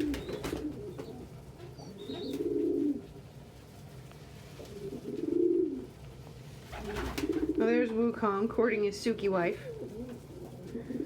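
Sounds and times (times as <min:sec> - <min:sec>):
pigeon cooing: 0:00.0 - 0:03.1, 0:04.7 - 0:06.0, 0:06.8 - 0:07.7, 0:09.6 - 0:11.0.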